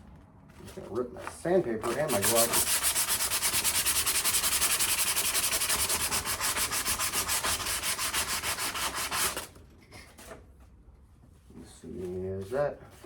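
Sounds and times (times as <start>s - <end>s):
sandpaper rasping on steel: 1.9s - 9.5s.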